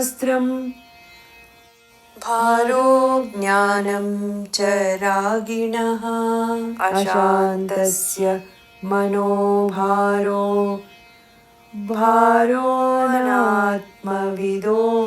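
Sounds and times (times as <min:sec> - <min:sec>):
person chanting verses: 0:02.2 - 0:10.8, 0:11.8 - 0:15.0.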